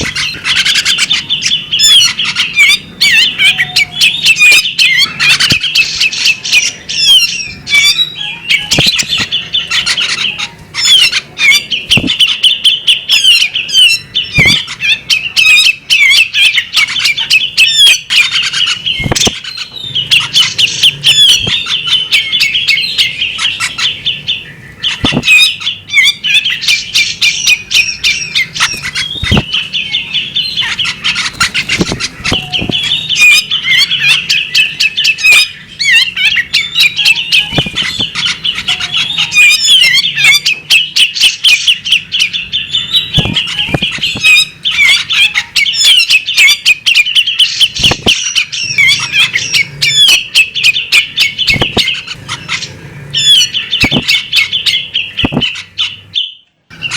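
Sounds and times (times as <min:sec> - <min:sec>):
bird singing chattering song: 0:00.0 - 0:56.9
sharp knocks or flaps: 0:19.0 - 0:19.4.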